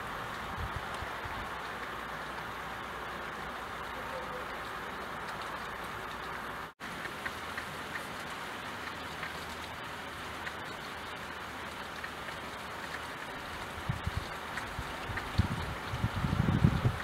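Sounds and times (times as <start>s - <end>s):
rain on a window: 0.0s - 17.0s.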